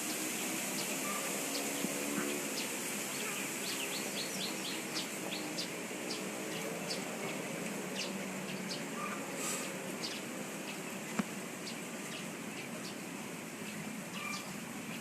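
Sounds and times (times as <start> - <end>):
insect hiss: 0.0 - 6.6
small birds chirping: 0.4 - 15.0.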